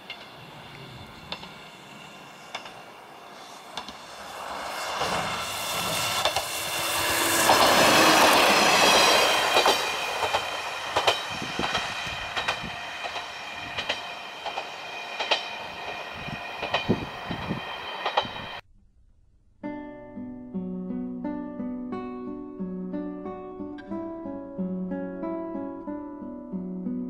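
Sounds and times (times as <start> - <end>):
diesel railcar passing: 0.0 - 18.6
wheels clicking over rail joints: 0.0 - 18.6.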